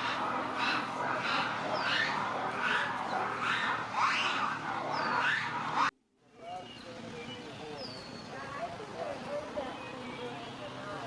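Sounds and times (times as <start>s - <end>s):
birds squawking: 0.0s - 5.9s.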